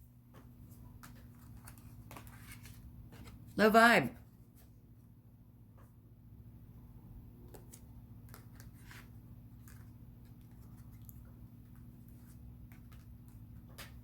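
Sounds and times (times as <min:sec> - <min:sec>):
cards shuffling: 0:00.4 - 0:03.6, 0:07.4 - 0:14.0.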